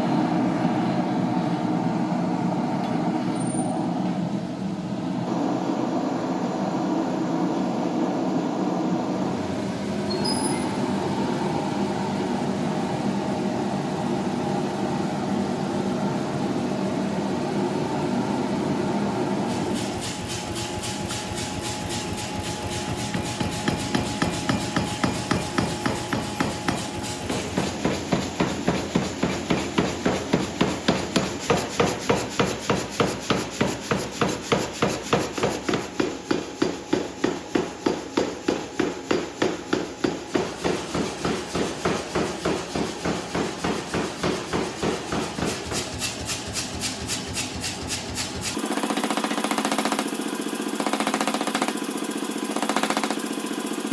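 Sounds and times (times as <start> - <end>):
hammer striking hot steel: 19.6 - 48.6.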